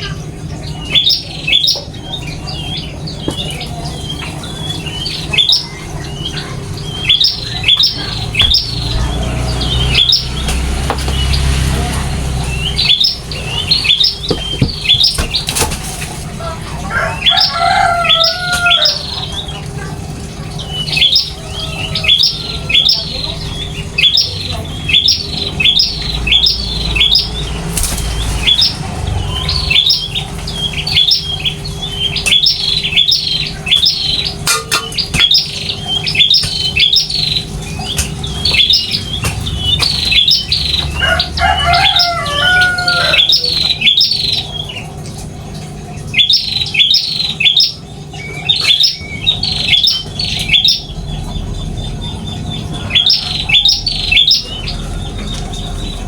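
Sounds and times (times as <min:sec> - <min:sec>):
low warbling bird call: 0:00.0 - 0:15.5, 0:16.2 - 0:56.0
small birds chirping: 0:00.0 - 0:56.0.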